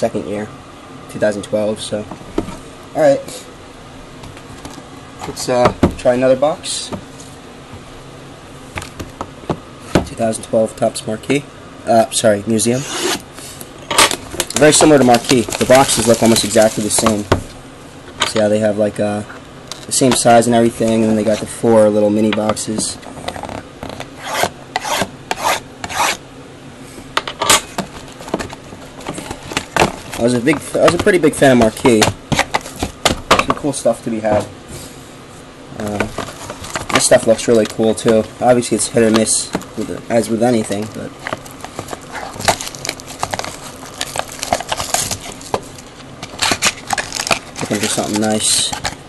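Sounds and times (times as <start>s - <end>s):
cardboard scraping and rustling: 14.1s - 17.5s, 27.7s - 33.0s, 35.8s - 38.3s, 39.0s - 49.0s.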